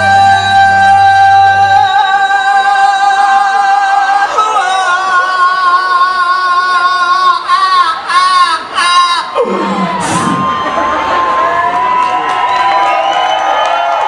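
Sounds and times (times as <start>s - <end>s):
backing track: 0.0s - 3.7s
person singing with vibrato: 0.0s - 10.4s.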